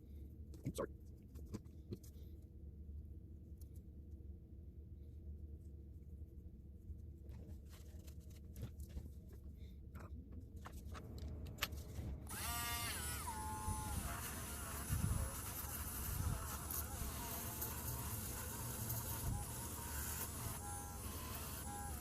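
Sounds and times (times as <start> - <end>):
airbrush compressor buzzing: 12.3 - 22.0.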